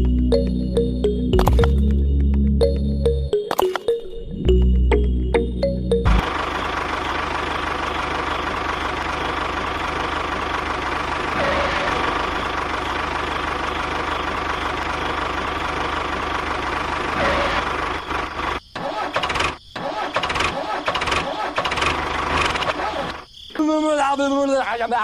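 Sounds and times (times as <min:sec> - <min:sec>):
engine idling with fast chug: 0:06.2 - 0:23.0.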